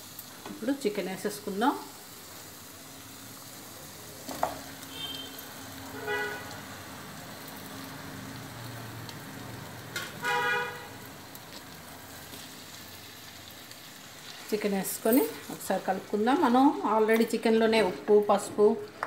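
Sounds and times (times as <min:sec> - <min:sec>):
chicken sizzling in a pan: 0:00.0 - 0:18.7
vehicle horn honking: 0:04.9 - 0:06.5, 0:10.2 - 0:11.0.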